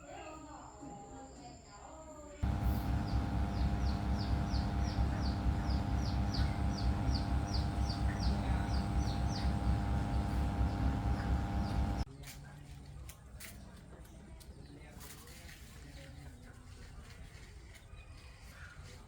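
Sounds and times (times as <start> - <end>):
machine pulsing and humming: 2.4 - 12.1.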